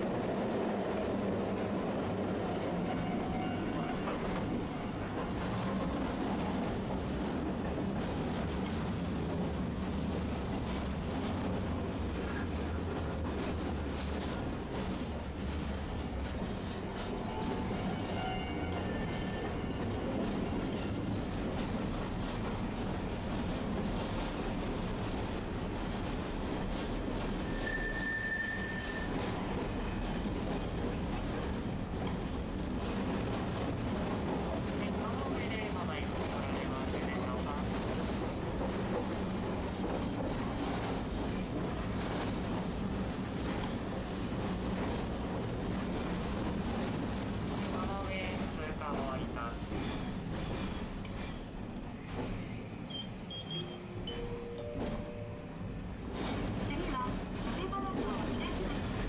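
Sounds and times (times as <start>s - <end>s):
streetcar rumbling on rails: 0.0s - 59.0s.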